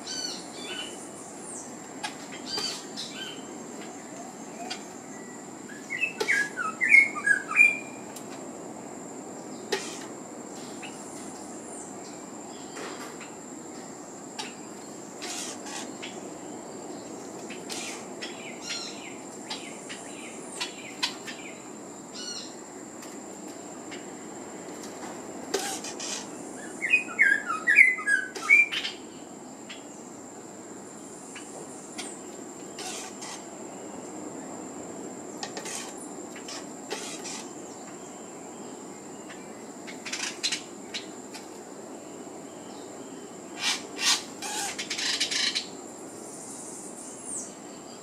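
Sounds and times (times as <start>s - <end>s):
songbird chirping: 0.0s - 8.3s, 23.8s - 30.1s.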